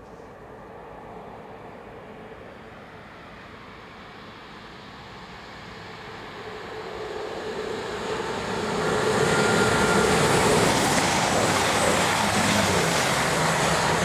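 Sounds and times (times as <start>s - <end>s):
diesel train engine hum: 0.0s - 14.0s
wheels on rails rushing: 4.1s - 14.0s.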